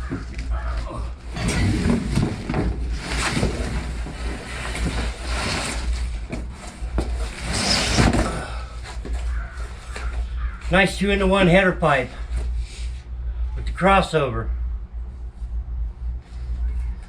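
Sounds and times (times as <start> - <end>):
steady low rumble: 0.0 - 17.0
paper and cardboard rustling: 1.4 - 10.8.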